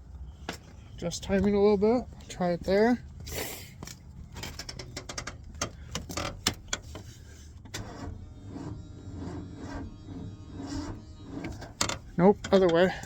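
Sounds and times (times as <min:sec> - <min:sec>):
engine cranking by starter: 0:07.6 - 0:13.0.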